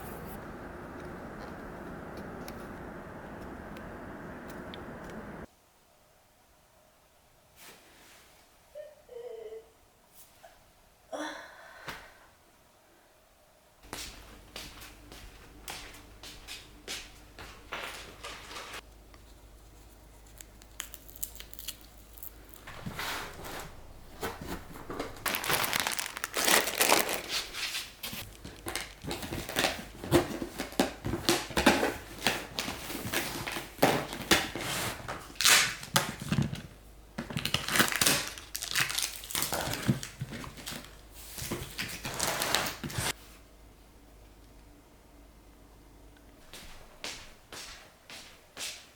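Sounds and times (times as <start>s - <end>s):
crinkling and rustling: 14.1s - 43.4s.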